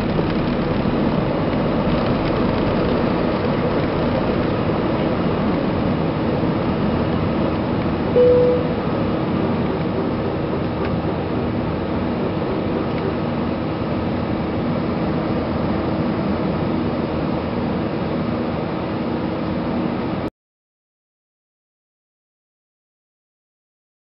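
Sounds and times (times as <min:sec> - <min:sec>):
airplane cabin engine rumble: 0:00.0 - 0:20.3
cabin chime: 0:08.2 - 0:08.8.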